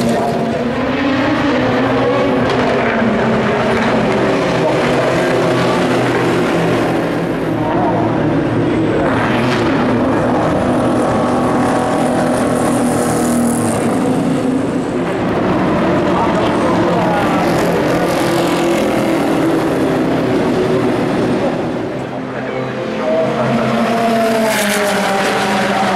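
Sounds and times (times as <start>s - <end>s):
race cars passing at high revs: 0.0s - 25.9s.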